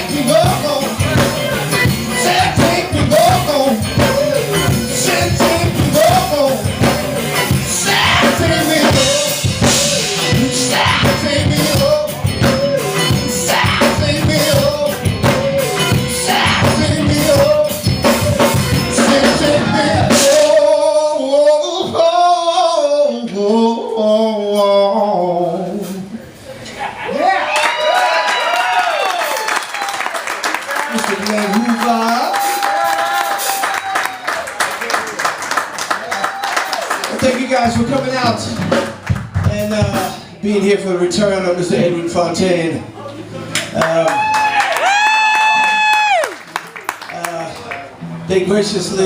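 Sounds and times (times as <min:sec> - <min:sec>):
drum kit: 0:00.0 - 0:21.2, 0:37.1 - 0:40.4
man singing: 0:00.0 - 0:26.2
live band playing: 0:00.0 - 0:26.8, 0:28.6 - 0:49.0.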